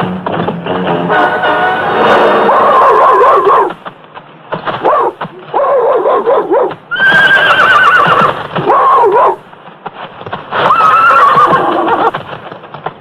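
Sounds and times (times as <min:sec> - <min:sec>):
hoofbeats: 0:00.0 - 0:13.0
horses whinnying: 0:02.2 - 0:03.7, 0:06.9 - 0:09.3, 0:10.5 - 0:12.2.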